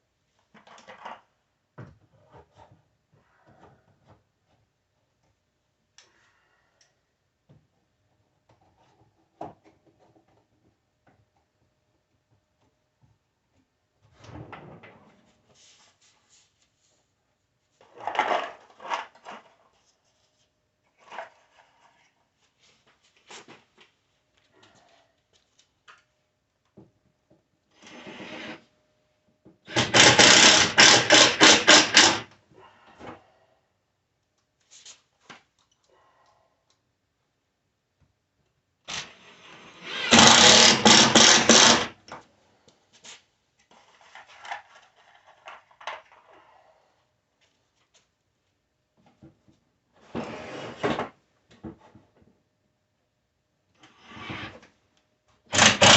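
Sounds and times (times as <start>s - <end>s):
power tool rapid pulses: 29.7s - 32.2s, 39.9s - 41.9s, 55.5s - 55.9s.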